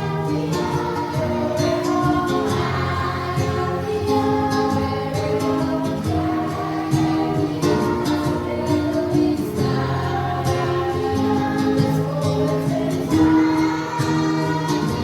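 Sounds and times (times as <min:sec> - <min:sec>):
choir singing a hymn: 0:00.0 - 0:15.0.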